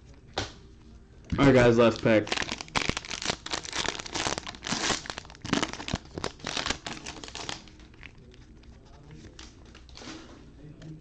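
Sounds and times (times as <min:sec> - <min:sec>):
wrapper crinkling and tearing: 0:01.3 - 0:08.5.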